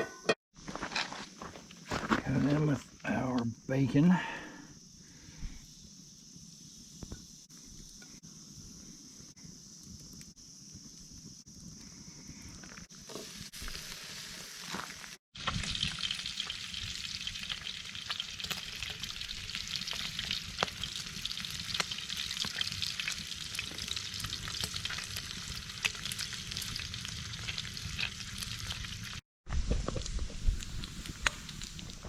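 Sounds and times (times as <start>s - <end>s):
bacon sizzling in a skillet: 12.7s - 32.0s.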